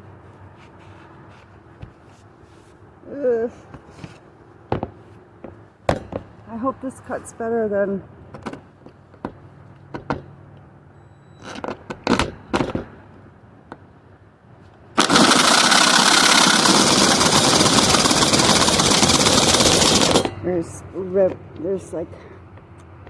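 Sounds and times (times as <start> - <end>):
power saw cutting sheet metal: 15.0 - 20.4.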